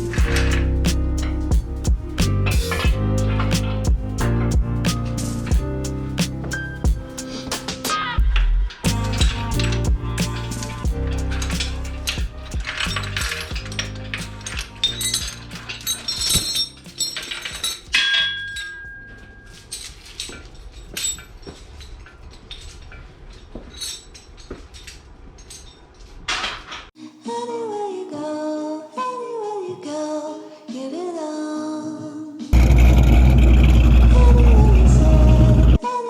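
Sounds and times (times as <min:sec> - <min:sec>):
background music gliding melody: 0:00.0 - 0:08.1, 0:08.8 - 0:20.3
metallic clinks and clatter: 0:12.7 - 0:26.8.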